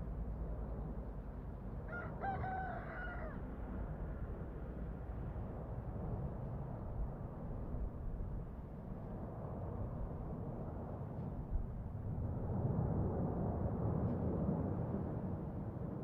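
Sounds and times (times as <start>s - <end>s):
rooster crowing: 1.9s - 3.4s.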